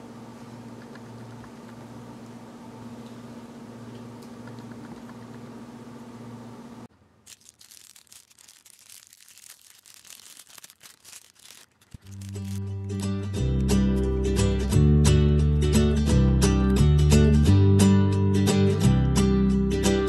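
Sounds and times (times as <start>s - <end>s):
plastic wrapper crinkling: 7.2s - 12.8s
acoustic guitar music: 12.3s - 20.0s.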